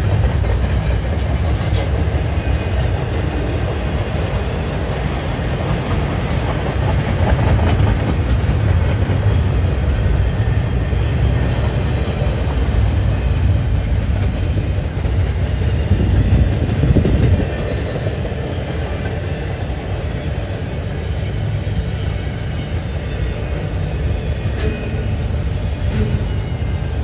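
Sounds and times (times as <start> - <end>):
freight train wheels rumbling: 0.0 - 27.0.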